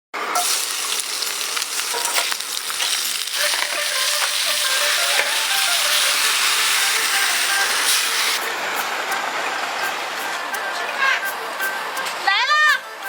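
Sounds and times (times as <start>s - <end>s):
food sizzling in hot oil: 0.3s - 8.4s.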